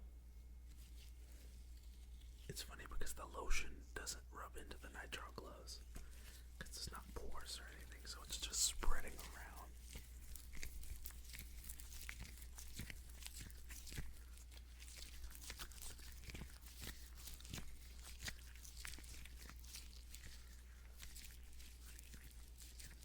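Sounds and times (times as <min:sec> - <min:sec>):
steady low hum: 0:00.0 - 0:16.6
gloves rubbing together: 0:00.6 - 0:23.0.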